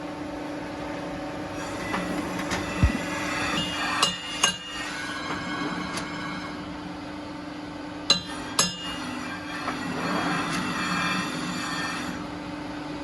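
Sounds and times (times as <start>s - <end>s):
low machine hum: 0.0s - 4.0s.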